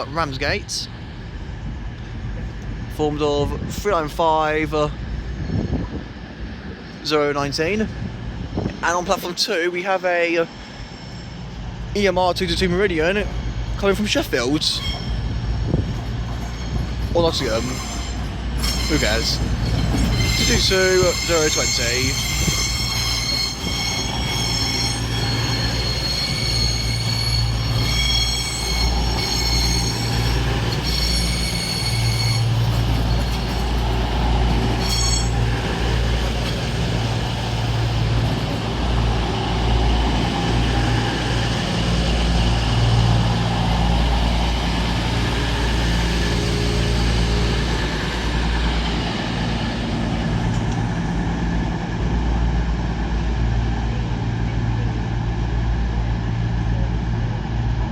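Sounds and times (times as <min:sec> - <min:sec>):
rushing rumble of train: 0:00.0 - 0:57.9
train wheels squealing: 0:10.3 - 0:11.9, 0:13.4 - 0:38.1.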